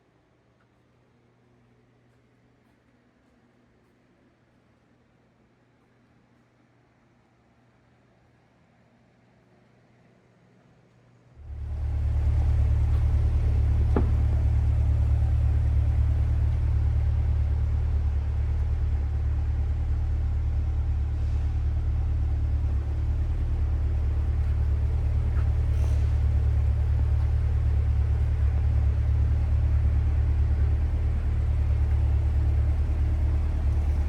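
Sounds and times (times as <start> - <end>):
car engine low rumble: 11.4 - 34.0.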